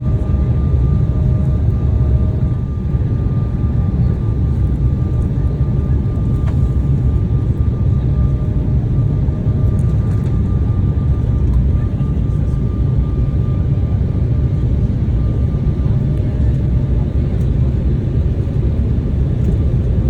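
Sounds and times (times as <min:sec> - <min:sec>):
engine and airflow roar: 0:00.0 - 0:20.0.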